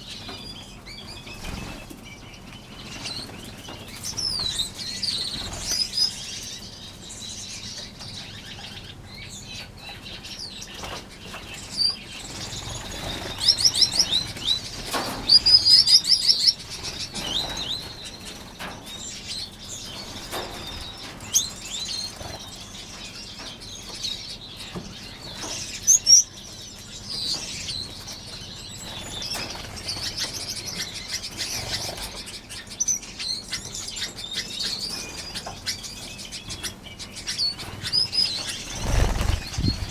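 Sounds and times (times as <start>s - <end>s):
finches chirping: 0.0s - 39.9s
wings fluttering: 10.8s - 18.7s, 37.6s - 39.9s
fast high bird trill: 37.9s - 39.9s.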